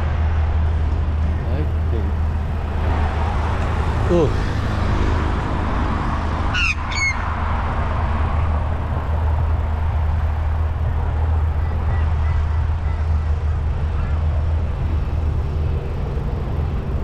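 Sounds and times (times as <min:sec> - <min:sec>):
wind and road noise: 0:00.0 - 0:17.0
bird harsh calls: 0:06.5 - 0:07.3.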